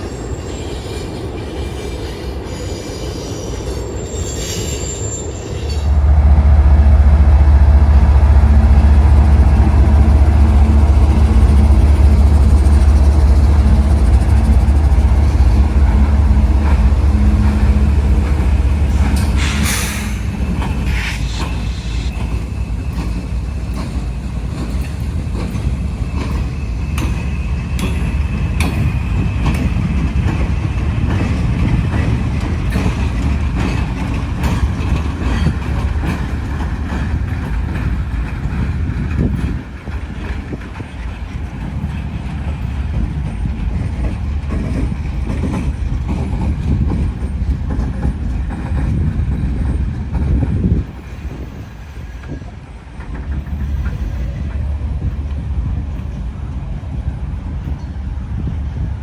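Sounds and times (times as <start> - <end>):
high wheel squeal: 0.0 - 6.0, 9.0 - 30.0
freight train rumbling: 0.0 - 59.0
train clanks: 0.0 - 59.0.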